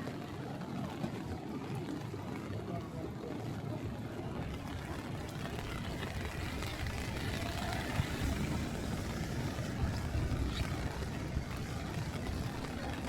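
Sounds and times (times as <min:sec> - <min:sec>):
wind buffeting microphone: 0:04.0 - 0:13.0.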